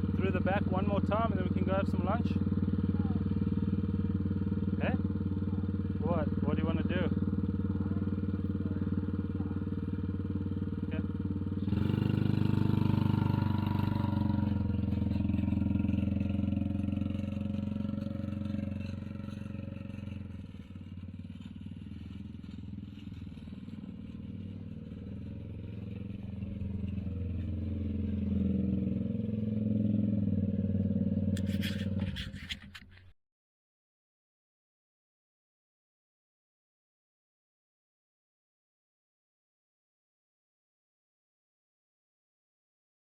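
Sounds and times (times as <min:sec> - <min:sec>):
small engine idling and revving: 0:00.0 - 0:33.2.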